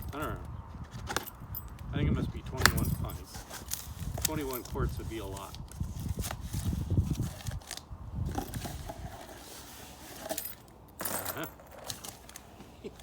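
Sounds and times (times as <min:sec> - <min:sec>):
packaging rustling: 0:02.6 - 0:13.0
cardboard box being opened: 0:05.3 - 0:10.4.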